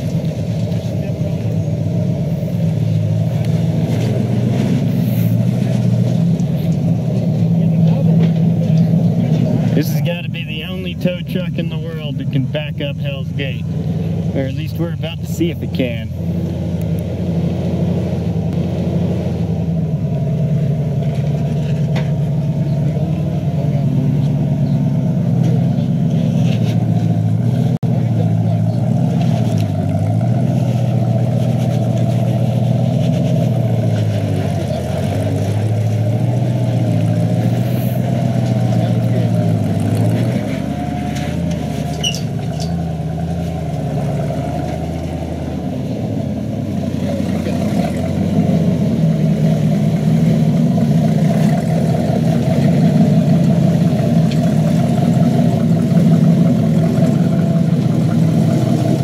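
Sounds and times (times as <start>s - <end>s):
truck engine under load: 0.0s - 59.0s.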